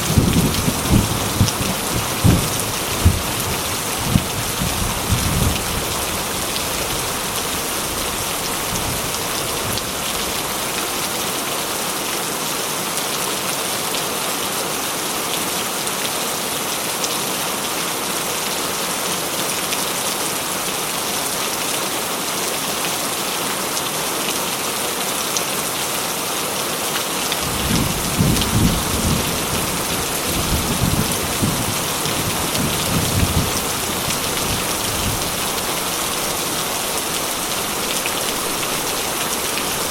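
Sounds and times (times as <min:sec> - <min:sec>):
thunder rumbling: 0:00.0 - 0:05.8, 0:27.4 - 0:35.7
heavy rain: 0:00.0 - 0:39.9.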